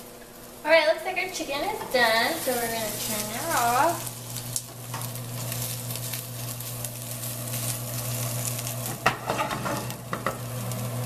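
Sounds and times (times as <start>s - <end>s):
chicken sizzling in a frying pan: 0.0s - 11.0s
steady low hum: 0.0s - 11.0s
spatula stirring in a pan: 4.9s - 10.4s.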